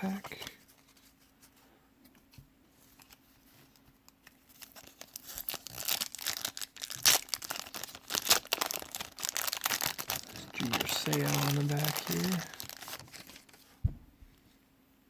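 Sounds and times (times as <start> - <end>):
card pack tearing and crinkling: 4.5 - 13.7.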